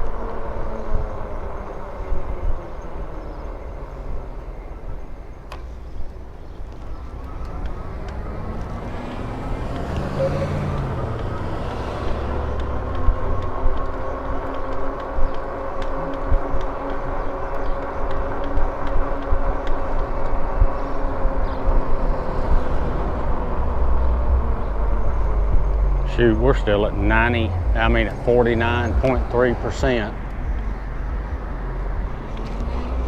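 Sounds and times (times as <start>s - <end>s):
wind rumbling on microphone: 0.0s - 33.0s
car passing by: 6.9s - 33.0s
electric motor whine: 7.1s - 26.1s.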